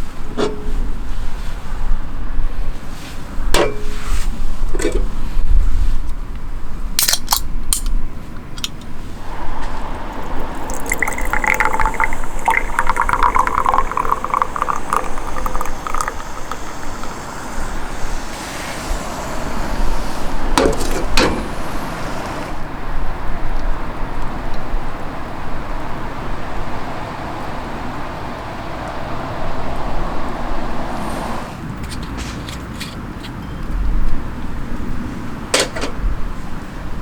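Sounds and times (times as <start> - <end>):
wind rumble on microphone: 9.0 - 22.7
liquid pouring into container: 9.2 - 21.9.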